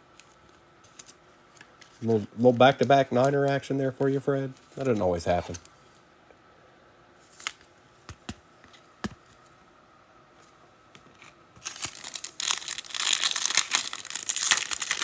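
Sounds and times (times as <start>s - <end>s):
foil wrapper crinkling: 11.6s - 15.0s.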